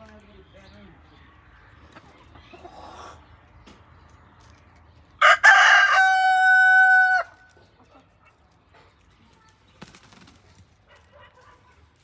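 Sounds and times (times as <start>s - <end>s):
rooster crowing: 5.2s - 7.4s.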